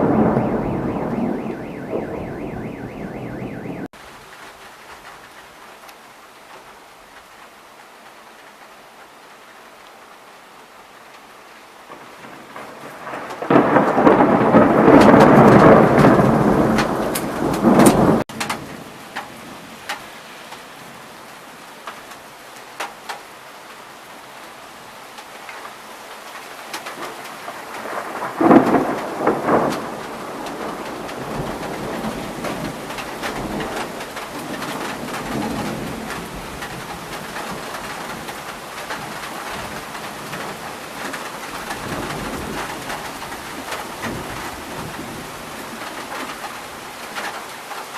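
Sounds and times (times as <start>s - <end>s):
thunder rumbling: 0.0s - 3.9s, 11.9s - 19.6s, 27.4s - 46.2s
steady rain: 0.0s - 47.9s.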